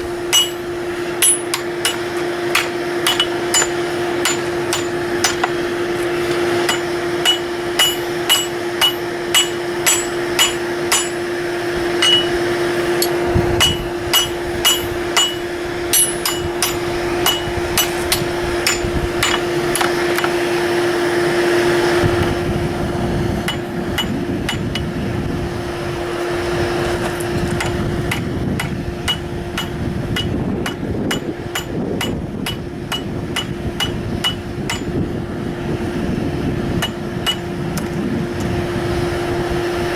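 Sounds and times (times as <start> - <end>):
hammer striking steel on an anvil: 0.0 - 20.4, 23.4 - 25.0, 27.6 - 35.0, 36.8 - 37.5
steady low hum: 0.0 - 39.9.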